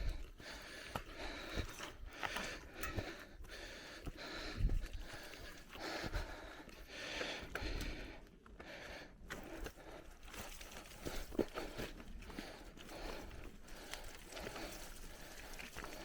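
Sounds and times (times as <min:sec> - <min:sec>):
bicycle tyres crunching on gravel: 0:09.8 - 0:16.0.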